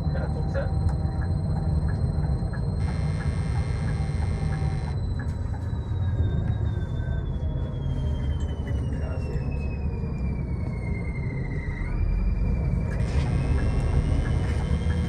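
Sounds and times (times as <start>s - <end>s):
bus engine and road rumble: 0.0s - 15.0s
high thin whine: 2.8s - 5.0s, 13.0s - 15.0s.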